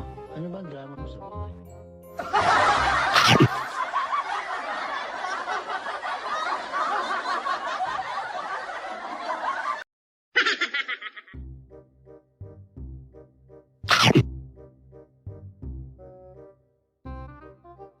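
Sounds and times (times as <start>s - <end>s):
music: 0.0s - 3.2s, 11.3s - 18.0s
canned audience laughter: 2.2s - 9.8s, 10.4s - 11.4s.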